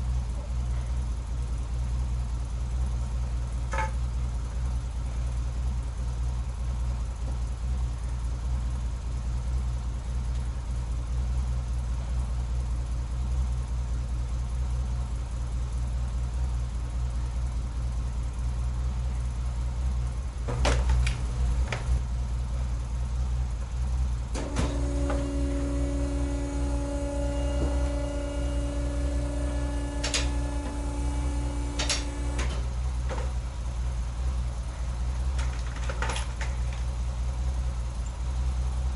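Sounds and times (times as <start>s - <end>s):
car engine idling: 0.0s - 38.9s
steady multi-pitch whine: 24.1s - 35.4s.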